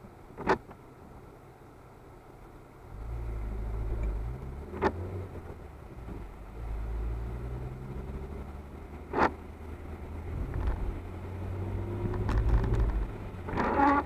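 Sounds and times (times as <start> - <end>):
car engine accelerating: 2.8 - 14.0.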